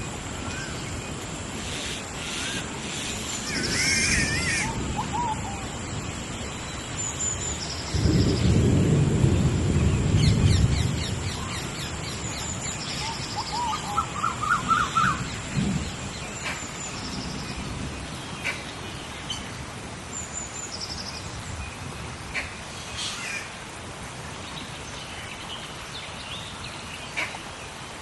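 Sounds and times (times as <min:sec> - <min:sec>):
steady rain: 0:00.0 - 0:28.0
high buzzing bird calls: 0:01.6 - 0:08.6
low thunder rumble: 0:07.7 - 0:18.3.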